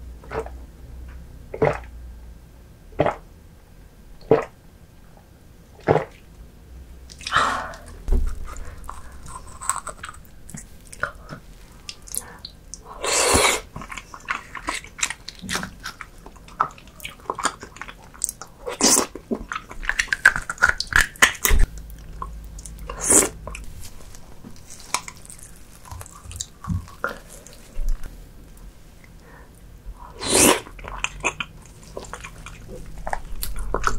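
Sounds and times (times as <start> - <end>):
person chewing sticky food: 7.1 - 29.4, 30.0 - 33.9.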